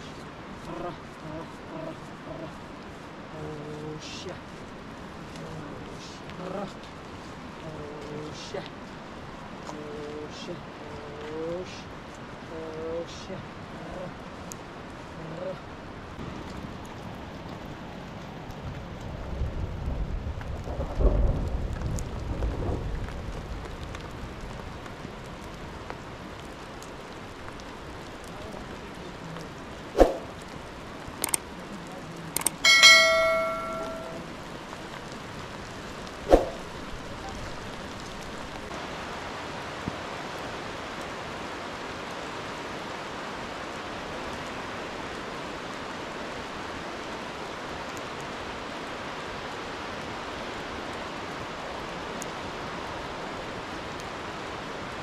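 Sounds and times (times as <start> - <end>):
steady rain hissing: 0.0 - 55.0
metal clanging and ringing: 32.6 - 34.3.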